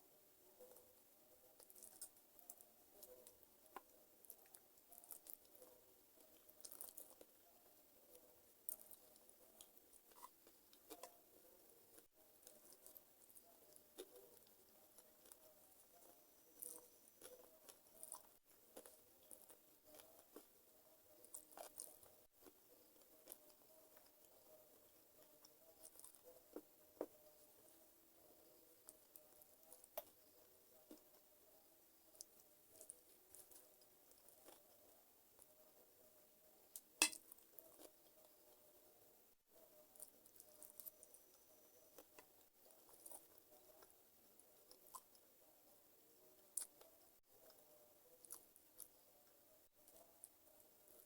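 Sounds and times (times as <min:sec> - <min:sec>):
faint low hum: 0:00.0 - 0:51.0
wet chewing clicks and crackles: 0:01.6 - 0:07.3, 0:11.9 - 0:20.5, 0:21.2 - 0:24.4, 0:25.2 - 0:26.6, 0:42.0 - 0:45.2, 0:46.4 - 0:47.6, 0:48.2 - 0:49.0
wet chewing: 0:12.0 - 0:20.5, 0:21.2 - 0:24.4.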